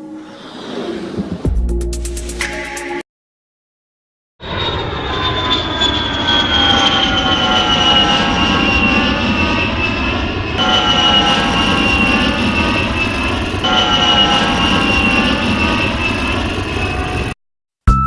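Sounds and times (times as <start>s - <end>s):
propeller air rumble: 0.0s - 2.8s, 4.4s - 17.4s
electric motor whine: 4.4s - 17.3s.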